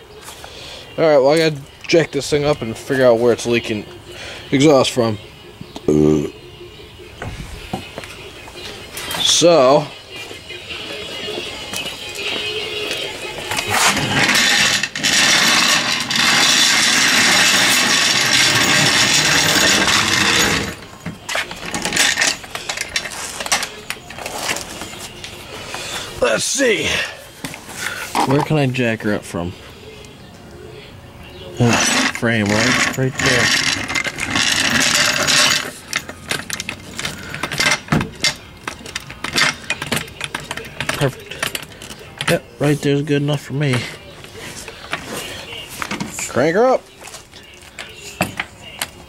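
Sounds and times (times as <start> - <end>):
metal clicks and clanks: 13.5 - 25.4, 31.7 - 42.4.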